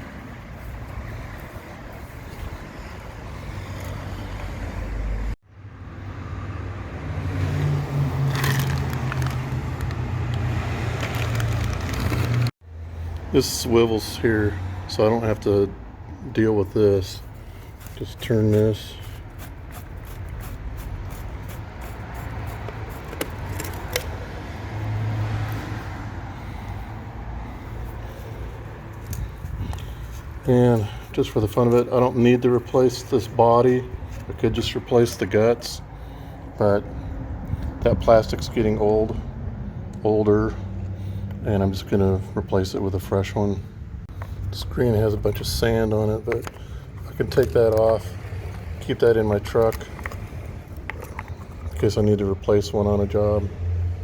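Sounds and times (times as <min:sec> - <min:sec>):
vehicle engine humming: 0:00.0 - 0:37.8
outdoor noise: 0:00.0 - 0:54.0.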